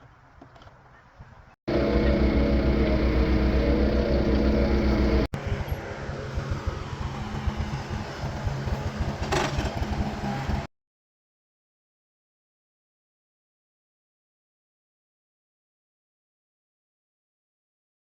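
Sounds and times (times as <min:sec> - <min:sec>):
engine humming: 0:01.7 - 0:10.7
engine running rough: 0:01.7 - 0:10.7.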